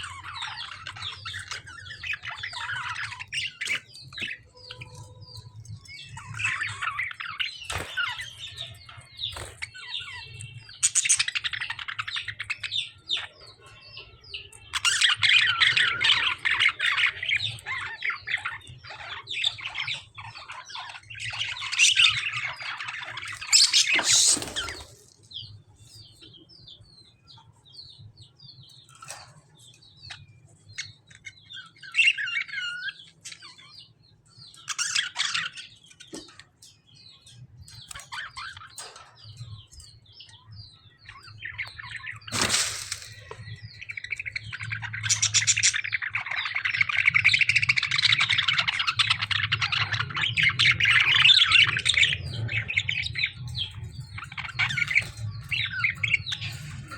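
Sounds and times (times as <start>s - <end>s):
bird chirps: 0.0s - 56.9s
birds squawking and chattering: 0.0s - 56.9s
sharp crack: 42.3s - 43.4s.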